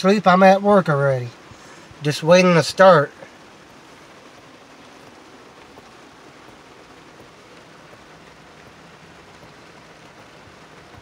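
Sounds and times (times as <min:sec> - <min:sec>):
heavy rain on vehicle roof: 0:00.0 - 0:11.0.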